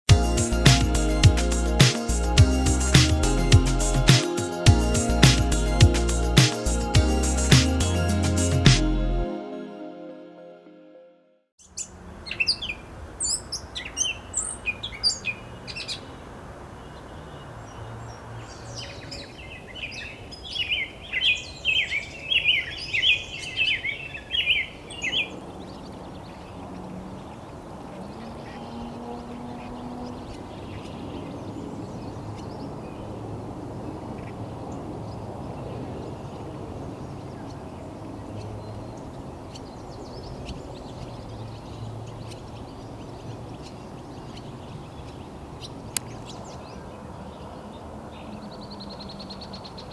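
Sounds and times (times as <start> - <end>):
sharp high bird chirps: 0.1 - 8.9
low outdoor background noise: 11.6 - 49.9
rapid birdsong: 11.6 - 49.9.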